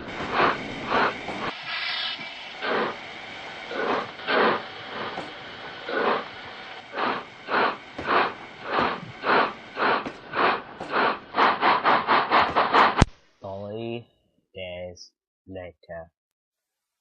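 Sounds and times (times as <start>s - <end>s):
steam locomotive chuffing: 0.0s - 13.1s.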